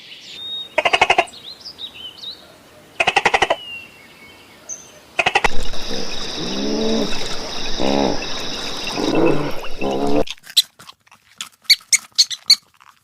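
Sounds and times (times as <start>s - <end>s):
short pitched animal calls: 5.2s - 10.4s
small animal squeaks and clicks: 10.3s - 13.0s.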